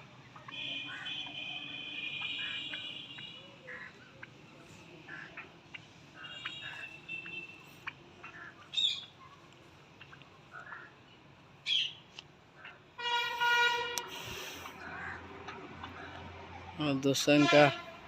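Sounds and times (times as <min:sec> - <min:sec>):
poultry calls and chirps: 0:00.2 - 0:13.0, 0:14.1 - 0:16.3.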